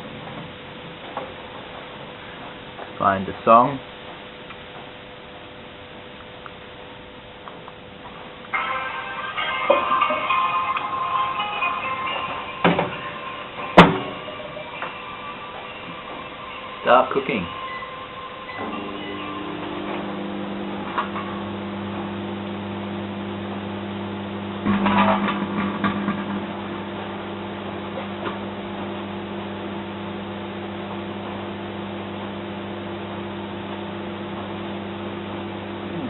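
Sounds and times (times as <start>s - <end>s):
microwave oven humming: 0.0s - 36.0s
crackling and popping: 4.0s - 8.6s.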